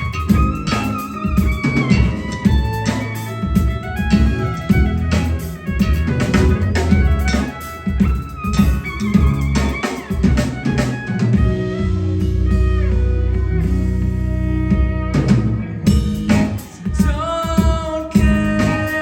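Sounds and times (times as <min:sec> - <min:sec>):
bass guitar: 0:00.0 - 0:19.0
drum kit: 0:00.0 - 0:19.0
electric guitar: 0:00.0 - 0:19.0.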